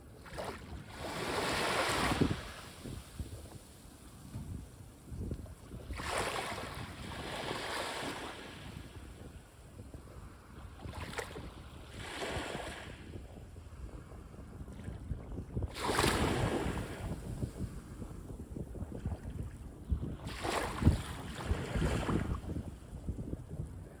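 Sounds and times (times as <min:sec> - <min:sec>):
sea waves breaking on beach: 0:00.2 - 0:04.1, 0:05.8 - 0:08.9, 0:15.7 - 0:17.5.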